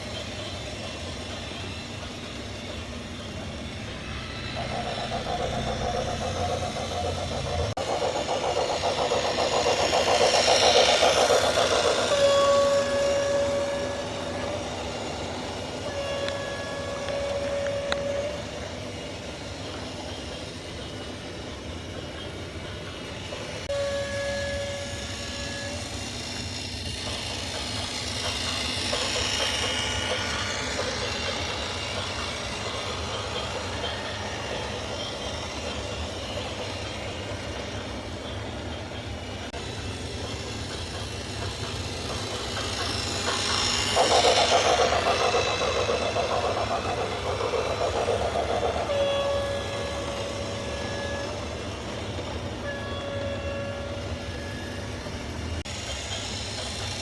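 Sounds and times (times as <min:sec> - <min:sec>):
train running noise: 0:00.0 - 0:57.0
train horn: 0:10.9 - 0:18.8, 0:23.7 - 0:26.0, 0:48.5 - 0:54.8.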